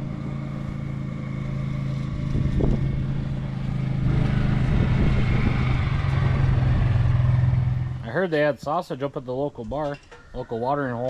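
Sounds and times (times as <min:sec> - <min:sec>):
engine running steadily: 0:00.0 - 0:08.3.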